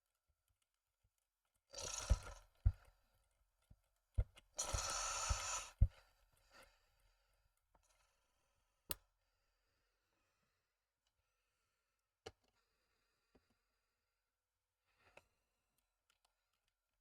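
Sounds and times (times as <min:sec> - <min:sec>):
knocks and clicks of small parts: 0:00.0 - 0:03.0, 0:03.6 - 0:06.4, 0:15.1 - 0:16.8.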